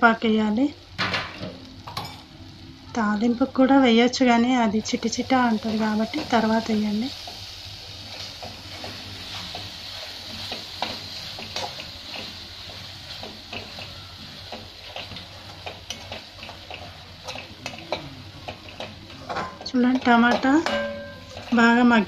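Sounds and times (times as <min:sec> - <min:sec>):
tomatoes sizzling in a metal pan: 0:00.0 - 0:22.0
spatula scraping and tapping pan: 0:08.0 - 0:22.0.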